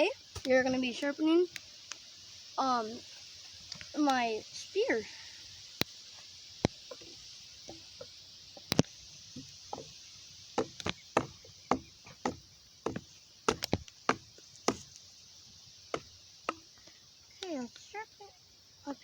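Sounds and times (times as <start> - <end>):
blade chopping wood: 10.6 - 15.0, 15.9 - 16.7.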